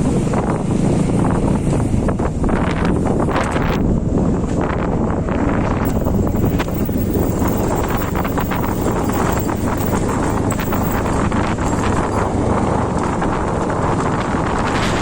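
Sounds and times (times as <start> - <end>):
clicks and rattles: 3.4 - 3.8, 5.8 - 12.4.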